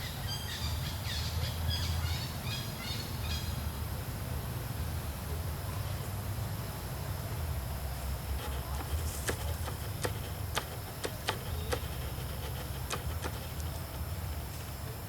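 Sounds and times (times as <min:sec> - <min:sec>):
bird chirping: 0:08.5 - 0:14.0.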